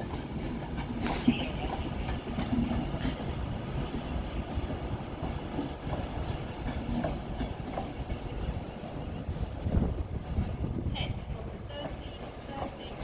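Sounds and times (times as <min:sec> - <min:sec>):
train rolling rumble: 0:00.0 - 0:13.0.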